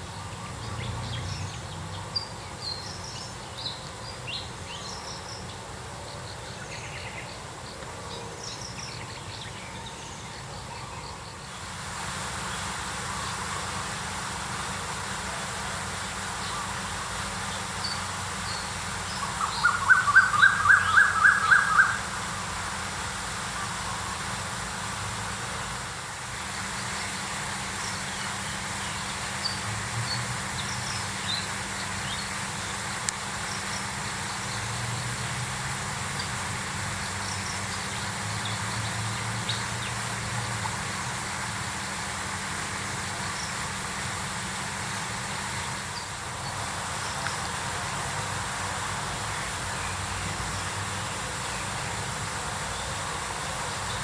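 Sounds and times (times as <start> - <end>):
birds chirping faintly: 0.0 - 54.0
outdoor background noise: 0.0 - 54.0
bird call notes rising in pitch: 18.6 - 22.5.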